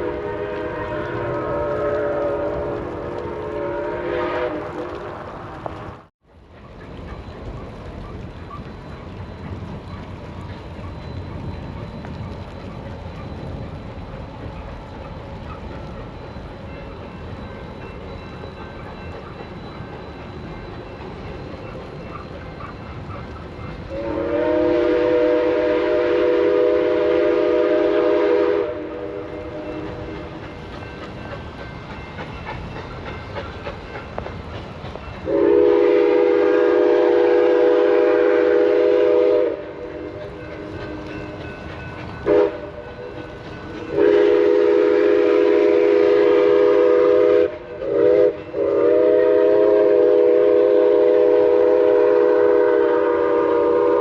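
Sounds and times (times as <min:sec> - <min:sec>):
train chime whistle blasts: 0:00.0 - 0:04.6, 0:23.9 - 0:30.4, 0:35.2 - 0:54.0
train rumble: 0:00.0 - 0:54.0.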